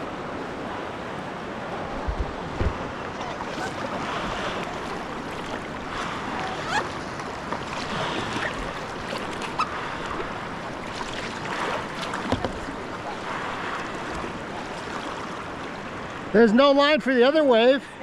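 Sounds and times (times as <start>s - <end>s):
water splashes: 0.0s - 17.0s
whitewater rushing: 0.0s - 17.0s
knocks against boat: 2.0s - 3.0s, 12.0s - 12.7s.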